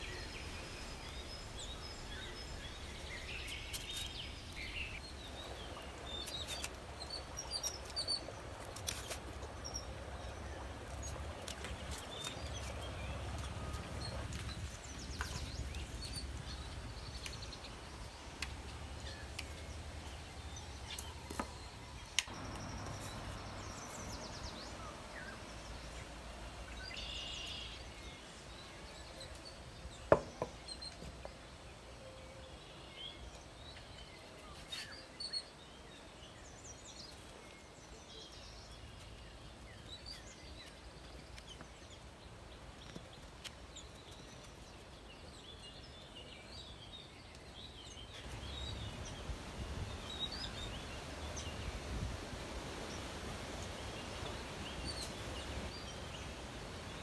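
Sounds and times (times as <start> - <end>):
faint bird chirps: 26.7 - 35.6.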